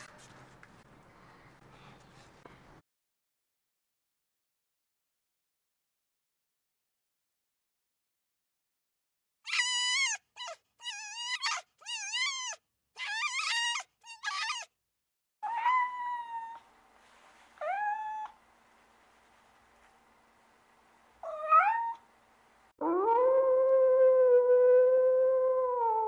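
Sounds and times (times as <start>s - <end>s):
animal crying: 9.5s - 14.7s, 15.4s - 16.6s, 21.2s - 22.0s
animal whining calls: 9.5s - 14.7s.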